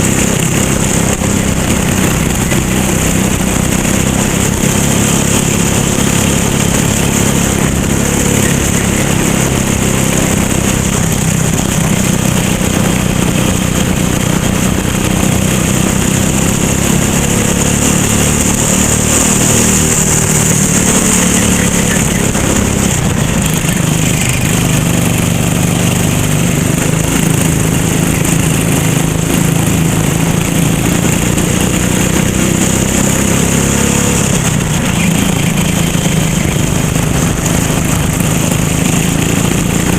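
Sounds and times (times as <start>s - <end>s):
kart engine revving: 0.0s - 39.9s
wind and road noise: 0.0s - 39.9s.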